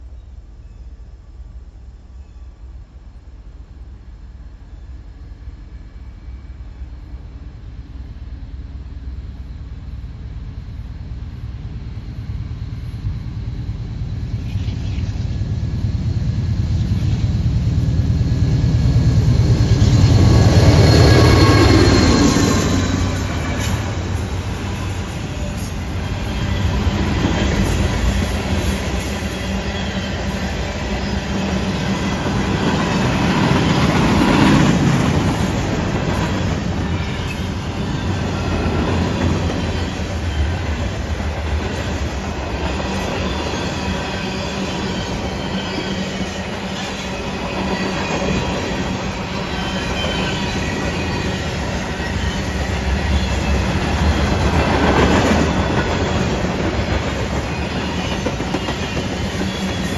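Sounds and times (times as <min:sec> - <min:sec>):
freight train wheels rumbling: 0:00.0 - 0:59.9
clickety-clack over rail joints: 0:11.6 - 0:59.9
wheel squeal: 0:14.4 - 0:59.9.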